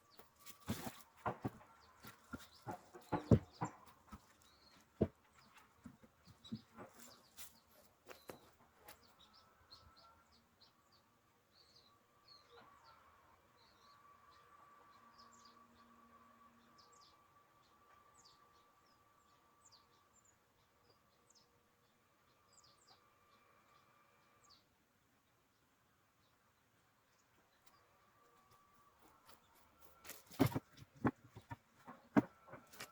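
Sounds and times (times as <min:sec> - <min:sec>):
faint small birds chirping: 0:00.0 - 0:32.9
knocks: 0:02.3 - 0:04.2.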